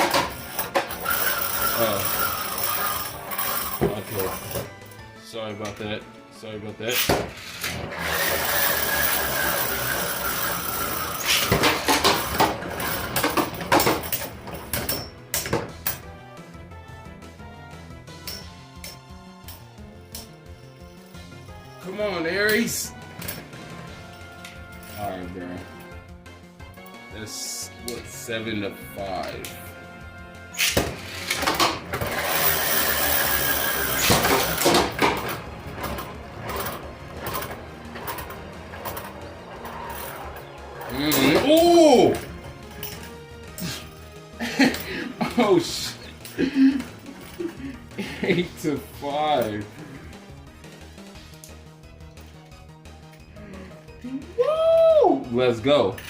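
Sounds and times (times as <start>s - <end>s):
spinning tops clacking: 0.0s - 4.7s, 7.0s - 16.1s, 30.6s - 43.2s.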